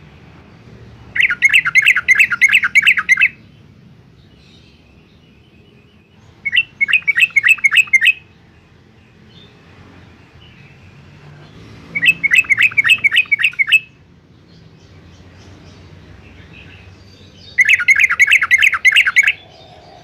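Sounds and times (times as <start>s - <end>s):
bird chattering: 1.1s - 3.4s, 6.3s - 8.3s, 11.9s - 14.0s, 14.9s - 20.0s.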